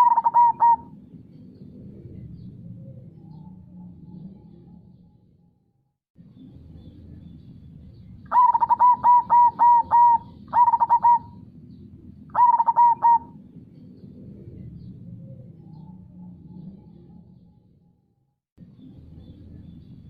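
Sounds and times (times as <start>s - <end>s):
dove cooing: 0.0s - 4.4s, 8.3s - 11.5s, 12.3s - 13.5s.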